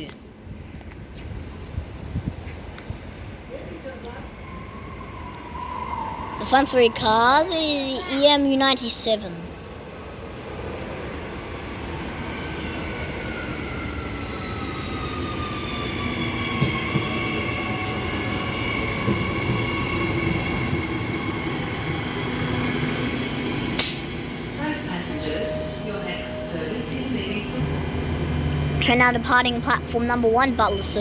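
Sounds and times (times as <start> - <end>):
low train rumble: 0.0 - 31.0
train brakes squealing: 13.3 - 26.8.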